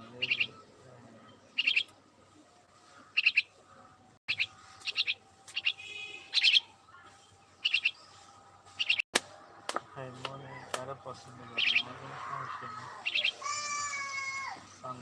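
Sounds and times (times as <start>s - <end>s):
small bird chirping: 0.0s - 2.0s, 2.8s - 9.1s, 11.5s - 14.9s.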